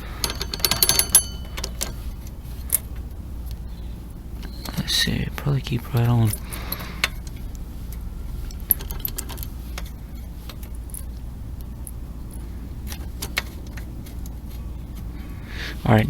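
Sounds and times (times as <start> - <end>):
hand wrench clicking on bolt: 0.0 - 2.0.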